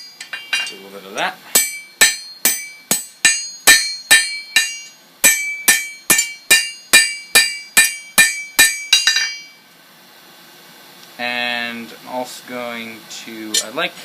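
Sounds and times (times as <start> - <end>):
hammer striking steel on anvil: 0.0 - 0.9, 1.5 - 9.6.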